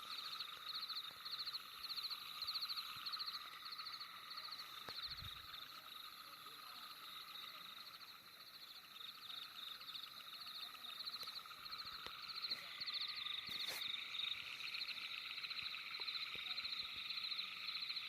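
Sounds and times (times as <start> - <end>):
frogs trilling: 0.0 - 18.0.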